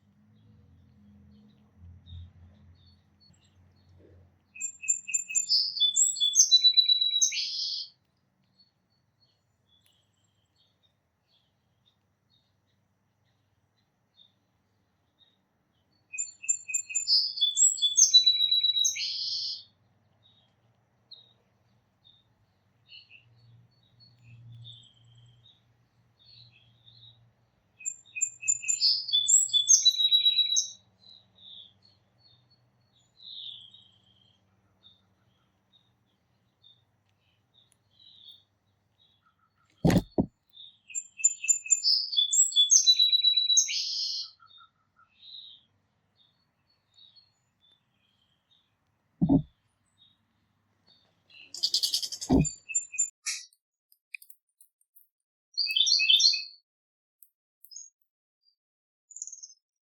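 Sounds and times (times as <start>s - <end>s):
songbird singing with trills: 0.8s - 13.4s, 14.1s - 21.4s, 27.8s - 50.2s, 50.9s - 53.5s, 55.6s - 56.6s
sharp knock: 39.8s - 40.3s, 49.2s - 49.5s, 52.3s - 52.5s
soft bird chips: 51.0s - 56.3s.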